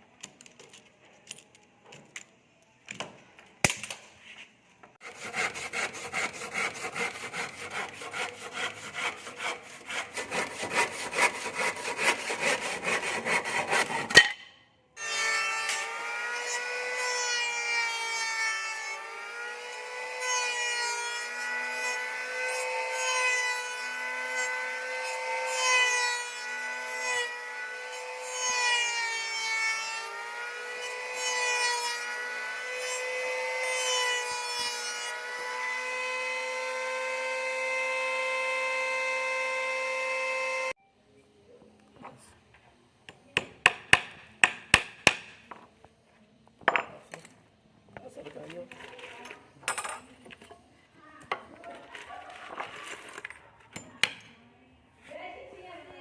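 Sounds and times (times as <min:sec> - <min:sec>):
saw cutting wood: 0:05.0 - 0:14.2, 0:15.0 - 0:40.8.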